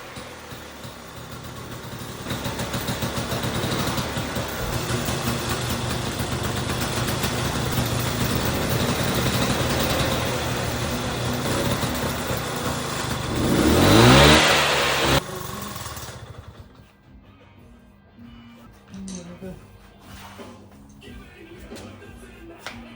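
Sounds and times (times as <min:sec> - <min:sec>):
scooter engine revving: 0:00.0 - 0:16.9.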